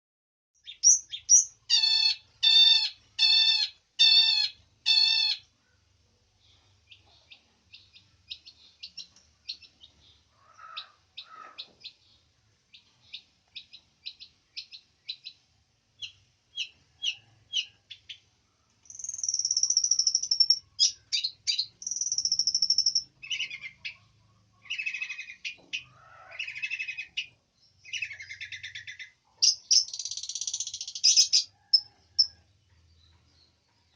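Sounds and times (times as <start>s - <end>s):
bird singing varied song: 0.6s - 33.9s.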